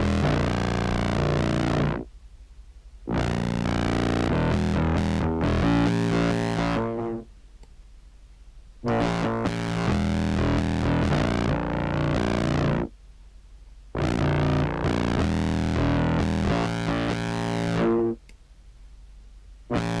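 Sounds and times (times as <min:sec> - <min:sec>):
fuzzy clarinet sustained notes: 0:00.0 - 0:02.0, 0:03.1 - 0:07.3, 0:08.9 - 0:12.9, 0:14.0 - 0:18.2.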